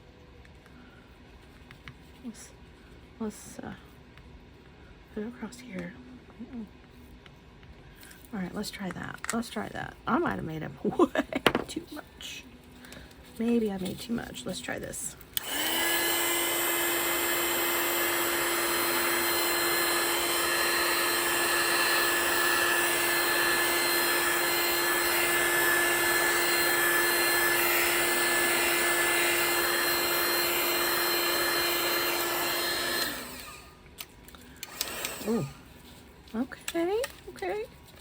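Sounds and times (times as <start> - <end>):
hot-air blower running: 11.0 - 11.9, 12.7 - 36.0.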